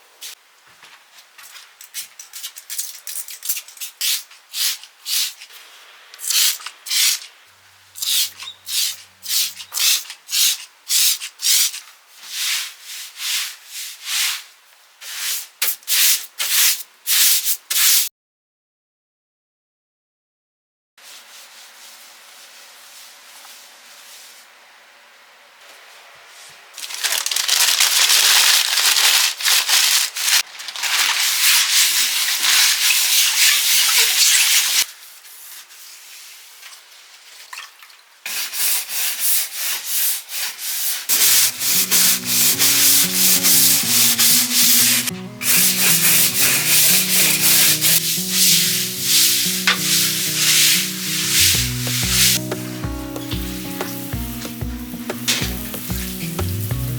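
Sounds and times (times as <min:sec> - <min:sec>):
hand scrubbing a surface: 0:31.2 - 0:36.4, 0:38.3 - 0:56.6
background music: 0:41.2 - 0:56.9.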